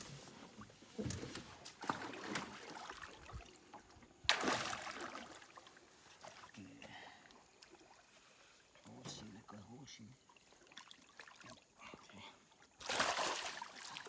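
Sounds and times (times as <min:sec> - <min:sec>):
water sloshing against boat: 0:00.0 - 0:14.0
loud splash: 0:04.3 - 0:05.3, 0:12.8 - 0:14.0.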